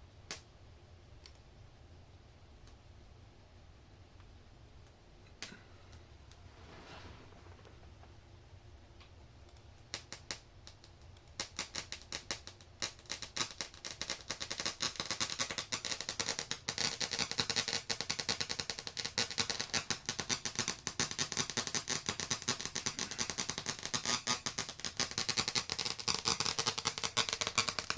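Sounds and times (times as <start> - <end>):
faint low hum: 0.0 - 11.4
glitchy clicking and crackling: 9.5 - 27.9.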